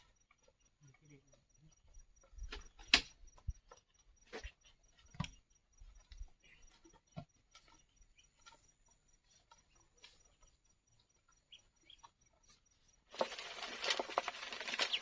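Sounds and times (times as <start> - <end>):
ducks pecking: 13.1 - 15.0
rustling: 13.1 - 15.0.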